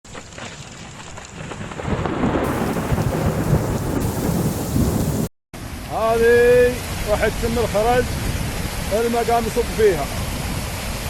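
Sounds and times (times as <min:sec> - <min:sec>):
steady rain: 0:00.2 - 0:11.0
thunder rumbling: 0:01.5 - 0:05.3.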